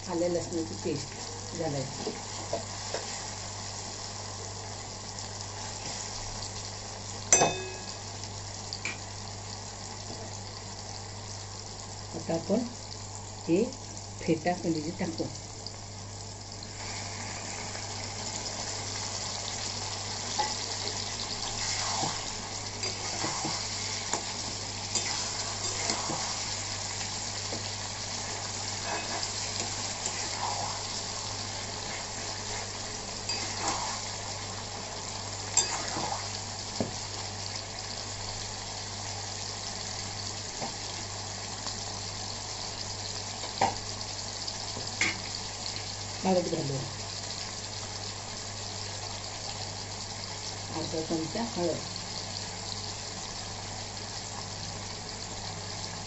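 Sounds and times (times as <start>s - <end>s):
meat sizzling in hot oil: 0.0s - 56.0s
spatula scraping a pan: 21.4s - 26.6s, 28.2s - 31.0s, 31.8s - 34.1s.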